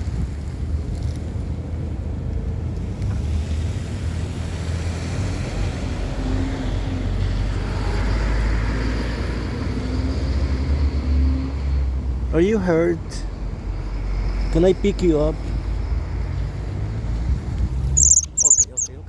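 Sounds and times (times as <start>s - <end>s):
road traffic noise: 13.2s - 19.0s.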